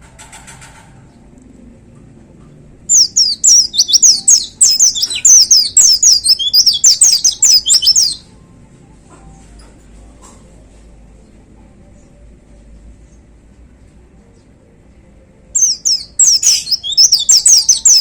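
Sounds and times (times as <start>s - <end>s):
bird singing fast falling notes: 2.9s - 8.2s, 15.6s - 18.0s.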